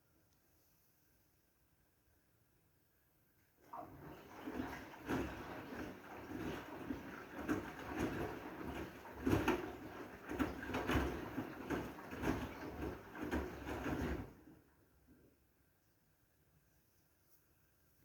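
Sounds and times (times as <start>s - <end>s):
washing machine drum swishing and thumping: 3.6s - 14.6s.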